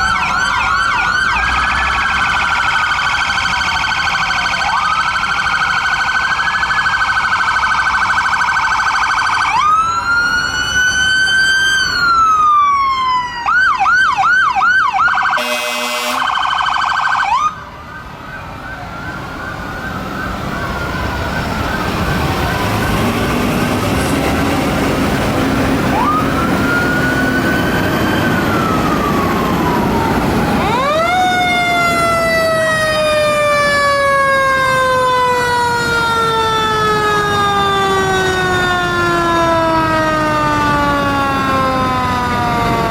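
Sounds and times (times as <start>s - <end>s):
fire truck sirens wailing: 0.0s - 42.9s
siren yelp: 0.0s - 42.9s
horn blast: 15.4s - 16.3s.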